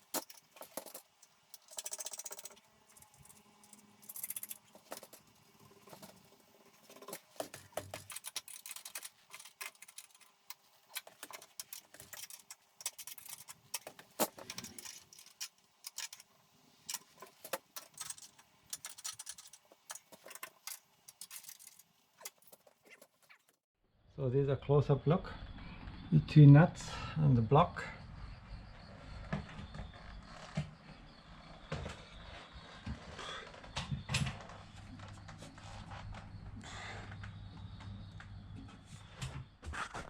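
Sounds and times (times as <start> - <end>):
metal hardware clicking: 6.8 - 16.3
faint hum: 24.0 - 39.5.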